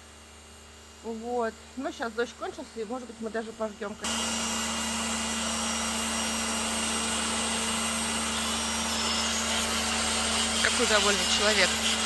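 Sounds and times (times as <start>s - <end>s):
pressure washer motor humming: 0.0s - 12.0s
water jet hissing: 2.8s - 12.0s.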